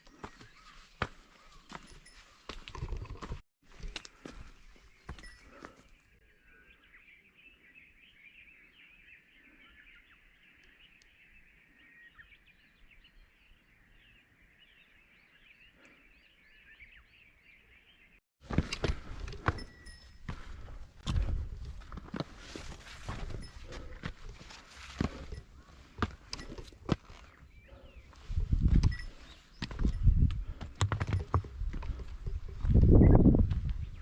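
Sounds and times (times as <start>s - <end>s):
small birds chirping: 0.0s - 18.2s, 19.4s - 34.0s
loud footsteps: 18.4s - 34.0s.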